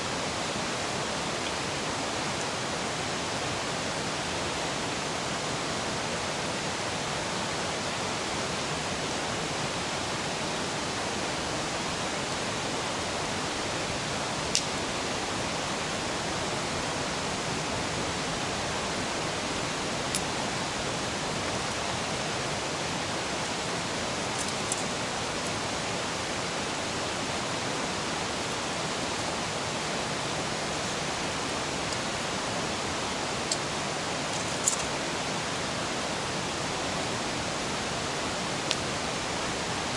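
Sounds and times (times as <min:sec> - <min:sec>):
river rushing: 0:00.0 - 0:39.9
campfire crackles: 0:14.5 - 0:14.8.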